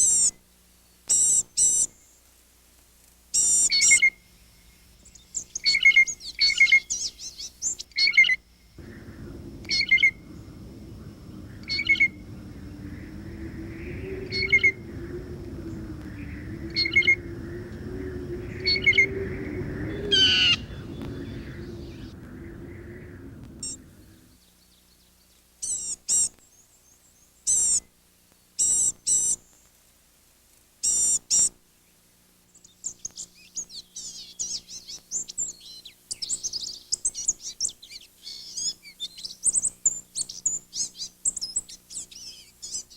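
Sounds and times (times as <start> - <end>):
low background noise with hum: 0.0 - 42.9
birds calling: 3.4 - 26.3.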